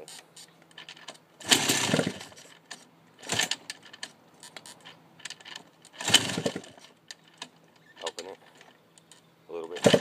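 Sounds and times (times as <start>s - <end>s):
dirt bike kickstarter: 0.7s - 10.0s
engine turning over: 0.9s - 2.5s, 3.2s - 4.0s, 5.3s - 6.9s, 9.8s - 10.0s.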